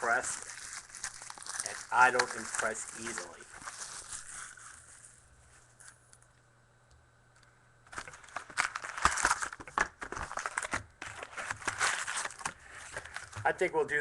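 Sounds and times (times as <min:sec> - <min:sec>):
foil wrapper crinkling and tearing: 0:00.0 - 0:05.3, 0:07.9 - 0:13.8.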